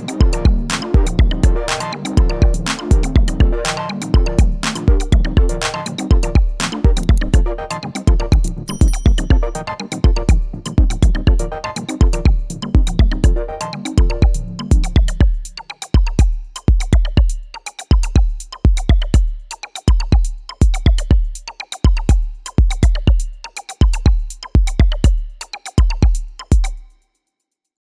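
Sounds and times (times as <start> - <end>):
electronic melody: 0.0 - 15.2
drum machine beat: 0.0 - 26.9.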